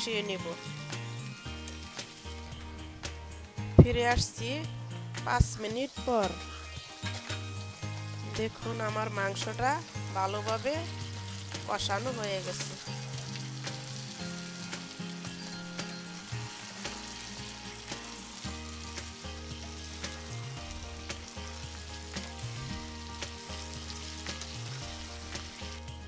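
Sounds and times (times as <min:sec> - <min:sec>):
food sizzling in hot oil: 0:00.0 - 0:26.0
soft background music: 0:00.0 - 0:26.0
spatula scraping a pan: 0:06.7 - 0:07.7.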